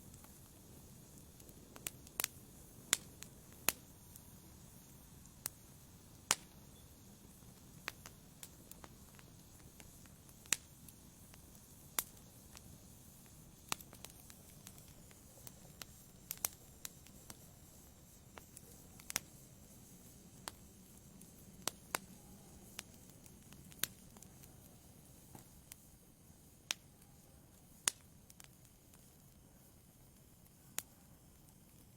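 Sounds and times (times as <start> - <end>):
low rumble of flames: 0.0 - 31.9
wood fire crackling and popping: 0.0 - 31.9.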